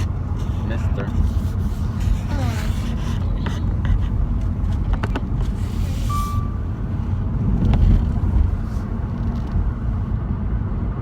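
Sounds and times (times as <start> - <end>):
car engine and tyre rumble: 0.0 - 11.0
brief high tone: 6.1 - 6.7.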